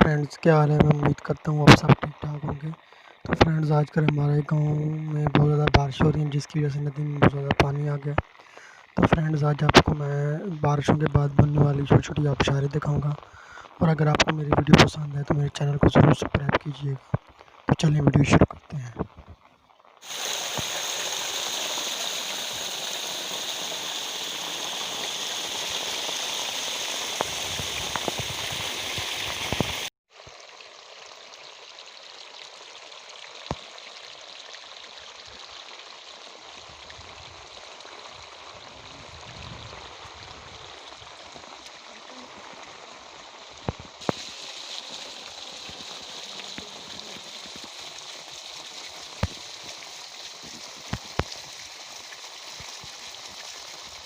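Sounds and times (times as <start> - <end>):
waterfall rushing: 20.0 - 29.9, 44.0 - 49.6.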